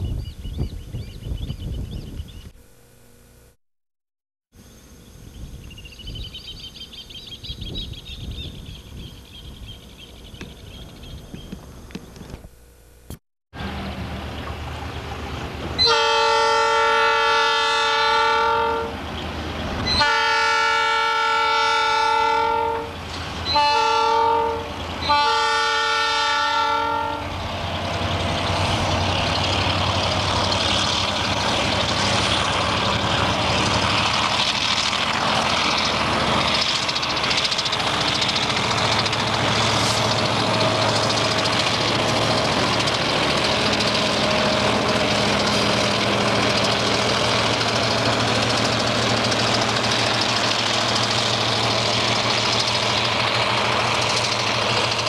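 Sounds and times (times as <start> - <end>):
train wheels rumbling on rails: 13.6 - 55.0
train air horn blasts: 15.8 - 19.0, 19.9 - 27.4.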